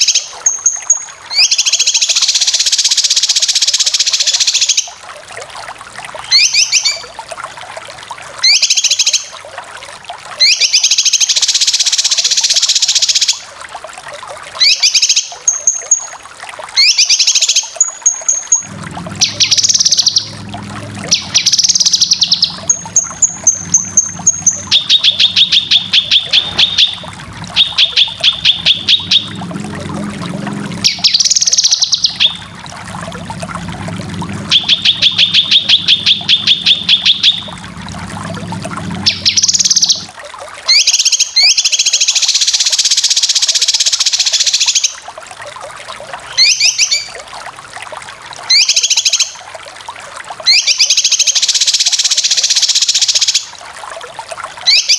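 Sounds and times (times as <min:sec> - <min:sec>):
steady low hum: 0:18.6 - 0:40.1
bird chattering trills: 0:21.0 - 0:29.4, 0:30.7 - 0:32.5.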